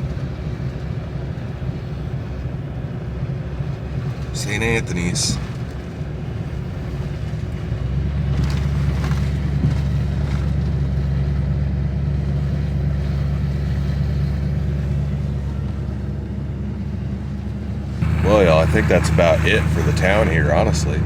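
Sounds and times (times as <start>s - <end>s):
truck engine and road noise: 0.0s - 21.0s.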